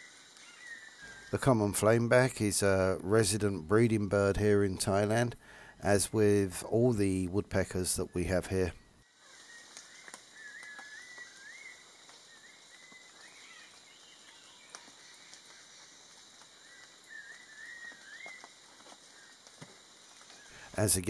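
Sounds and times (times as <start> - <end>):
bird singing whistled phrases: 9.4 - 15.0, 16.7 - 18.5.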